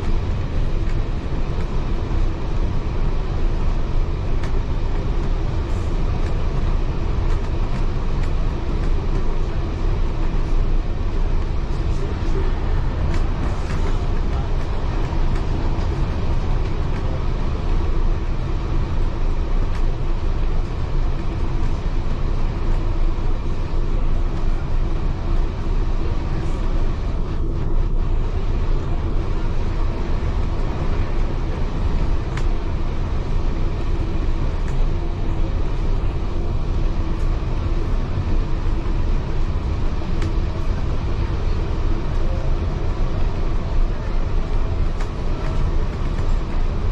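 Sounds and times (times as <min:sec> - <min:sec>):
railway carriage rumbling on track: 0:00.0 - 0:46.9.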